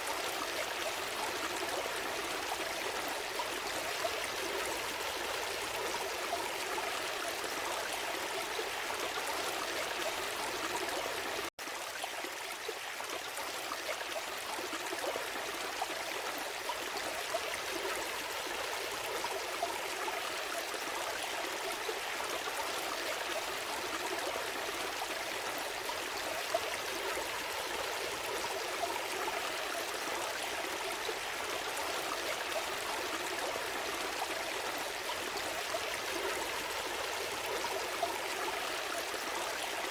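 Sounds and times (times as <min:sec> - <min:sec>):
forest stream flowing: 0:00.0 - 0:39.9.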